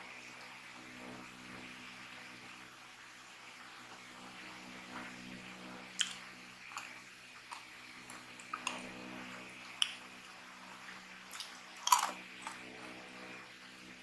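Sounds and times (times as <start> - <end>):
faint low hum: 0.0 - 14.0
crunchy snack being chewed: 6.0 - 8.9, 11.3 - 12.7.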